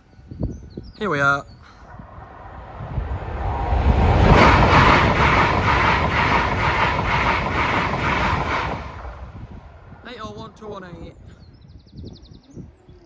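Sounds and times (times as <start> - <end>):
train passing at speed: 1.5 - 11.0
wheels clattering over track: 2.0 - 9.8.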